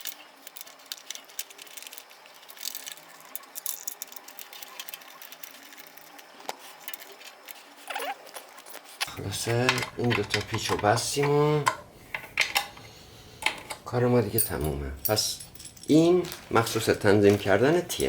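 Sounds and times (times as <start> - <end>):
allen key metal clicks and rattles: 0.0 - 6.2, 14.4 - 18.0.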